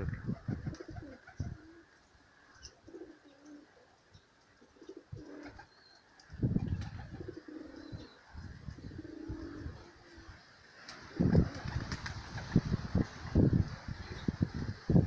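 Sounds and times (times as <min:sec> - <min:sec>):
wind buffeting microphone: 0:00.0 - 0:01.6, 0:06.3 - 0:10.4, 0:11.0 - 0:15.0
pigeons cooing: 0:00.3 - 0:01.9, 0:02.6 - 0:03.9, 0:04.6 - 0:05.8, 0:06.7 - 0:10.4.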